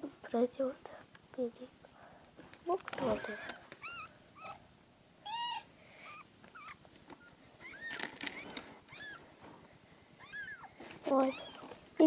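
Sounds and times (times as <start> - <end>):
kittens mewing: 3.0 - 4.6, 5.2 - 9.3, 10.2 - 11.8.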